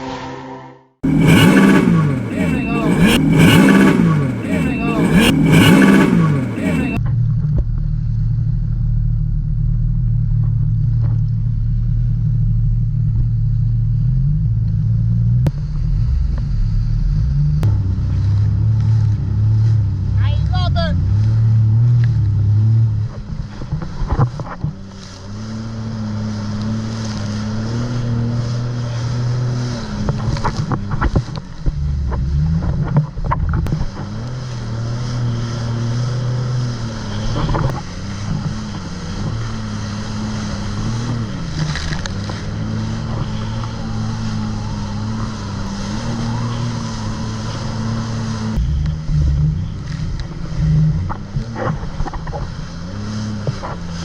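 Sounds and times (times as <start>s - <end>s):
jet ski engine running: 1.0s - 7.0s, 22.0s - 54.0s.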